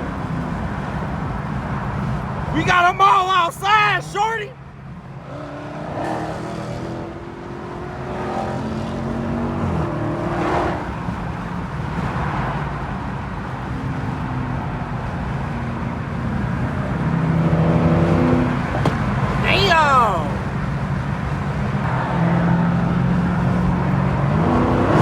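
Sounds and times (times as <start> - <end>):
car engines revving: 5.0 - 25.0.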